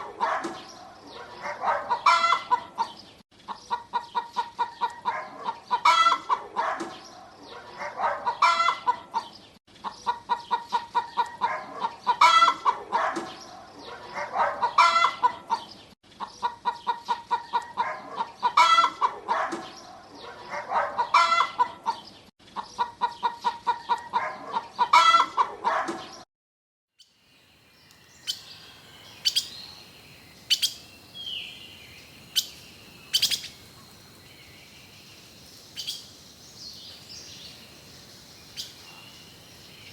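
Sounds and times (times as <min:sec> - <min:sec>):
hens clucking: 0:01.1 - 0:06.7, 0:07.5 - 0:13.1, 0:14.1 - 0:19.4, 0:20.3 - 0:22.0, 0:22.6 - 0:25.7
sharp bird chirps: 0:27.0 - 0:39.9.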